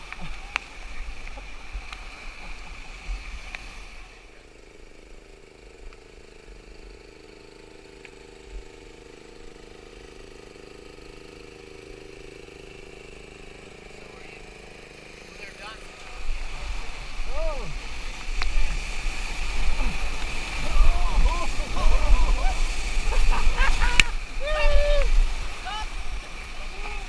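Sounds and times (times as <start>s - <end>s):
steady low hum: 0.0s - 27.0s
rushing whitewater: 15.4s - 27.0s
wind on microphone: 16.2s - 27.0s.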